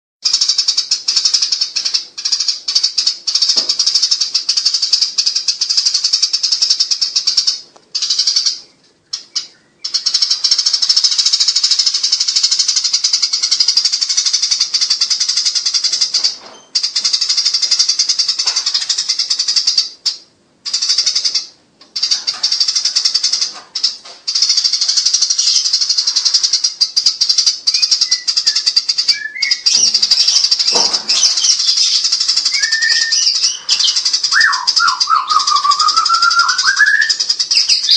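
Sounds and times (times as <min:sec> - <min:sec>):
sparrows chirping: 0:00.2 - 0:37.9.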